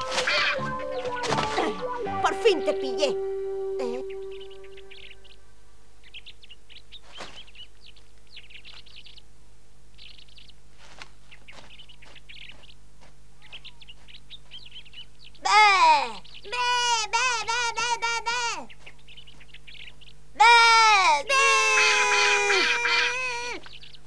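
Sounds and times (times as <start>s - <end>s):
faint steady hum: 0.0s - 24.0s
small birds chirping: 0.0s - 24.0s
loud voice: 15.4s - 18.7s, 20.4s - 23.6s.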